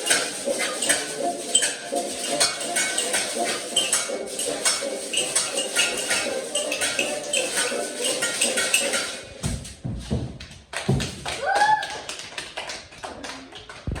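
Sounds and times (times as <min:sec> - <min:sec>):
taps on cutlery and dishes: 0:00.0 - 0:09.6.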